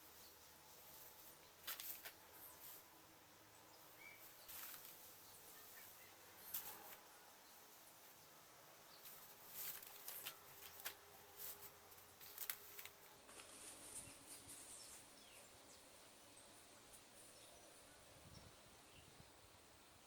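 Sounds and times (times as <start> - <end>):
quiet hiss: 0.0 - 20.0
packaging rustling and clicking: 9.5 - 13.6.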